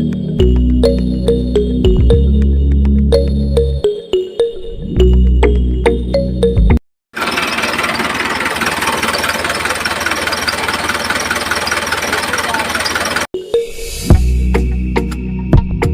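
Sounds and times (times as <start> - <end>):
background music: 0.0 - 6.8, 13.4 - 15.9
small motor rattling buzz: 7.2 - 13.3.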